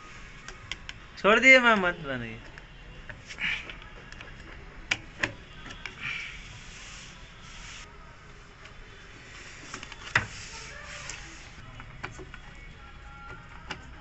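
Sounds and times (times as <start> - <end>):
sharp clicks and knocks: 2.4 - 6.0
rubbing and scraping: 6.1 - 7.9, 9.4 - 11.6.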